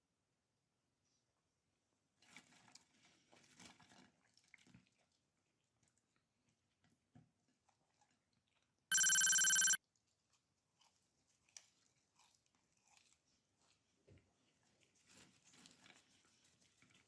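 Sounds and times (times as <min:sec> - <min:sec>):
electronic ringing sound effect: 0:08.9 - 0:09.8
small clicks: 0:08.9 - 0:09.8.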